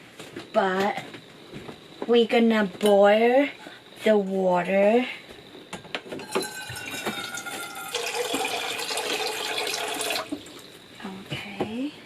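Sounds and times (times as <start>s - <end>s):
water pouring into container: 6.4s - 10.7s.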